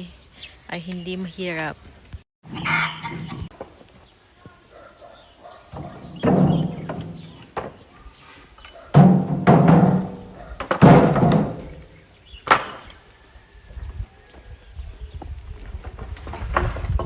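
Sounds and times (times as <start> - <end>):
wooden planks thrown onto pile: 5.7 - 7.9, 8.9 - 13.0, 15.8 - 17.0.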